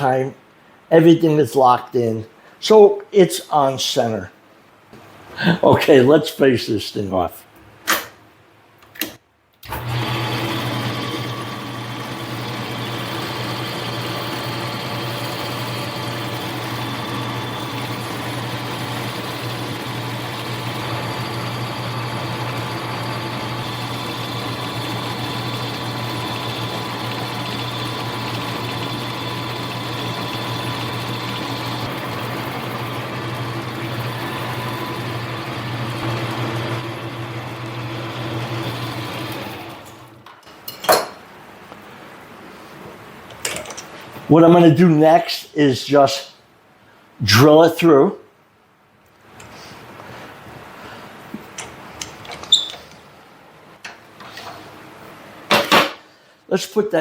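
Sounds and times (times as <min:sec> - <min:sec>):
metal lathe motor hum and whine: 0:09.7 - 0:40.1.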